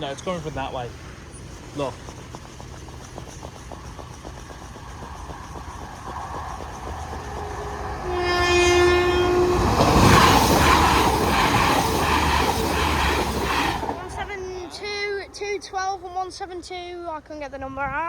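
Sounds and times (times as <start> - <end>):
train wheels clattering over rails: 0.0 - 16.2
two-tone train horn: 7.7 - 10.6.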